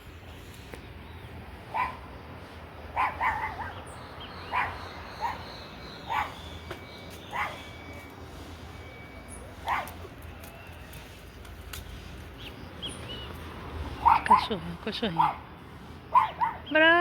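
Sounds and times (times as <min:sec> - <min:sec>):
dog barking: 0:01.7 - 0:02.0, 0:03.0 - 0:03.8, 0:04.5 - 0:05.5, 0:06.1 - 0:06.4, 0:07.3 - 0:07.6, 0:09.6 - 0:10.0, 0:14.0 - 0:15.4, 0:16.1 - 0:16.7.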